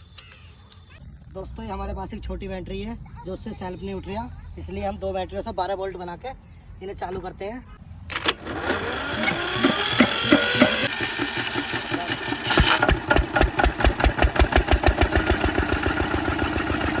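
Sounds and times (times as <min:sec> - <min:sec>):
electric starter motor whining: 0:08.1 - 0:17.0
engine running with even knock: 0:08.2 - 0:17.0.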